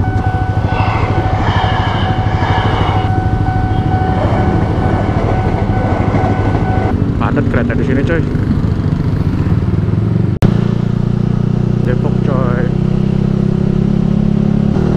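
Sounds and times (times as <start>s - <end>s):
high whine: 0.0s - 8.0s
motorcycle engine cruising: 0.0s - 14.9s
wind and road noise: 0.0s - 14.9s.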